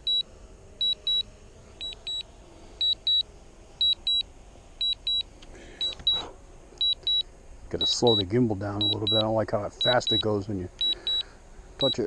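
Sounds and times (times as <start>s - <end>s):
remote controller double beeps: 0.0s - 0.2s, 0.8s - 1.2s, 2.8s - 3.2s, 6.8s - 7.2s, 7.8s - 8.2s, 8.8s - 11.2s, 11.8s - 12.0s.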